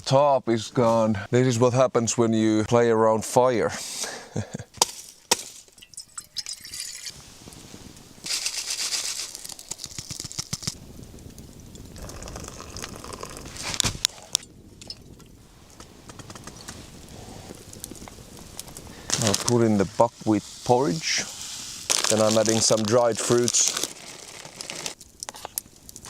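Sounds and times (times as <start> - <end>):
hissing like water being poured: 5.6 - 15.1, 16.8 - 25.0
camp gear being handled: 8.2 - 10.8, 13.0 - 14.4, 19.1 - 20.1, 21.0 - 25.6.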